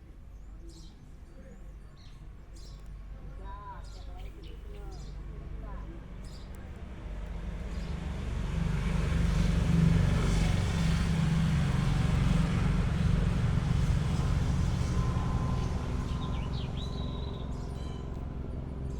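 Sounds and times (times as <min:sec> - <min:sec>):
passing vehicle engine rumble: 0:02.7 - 0:18.9
bird chirping: 0:15.6 - 0:18.3.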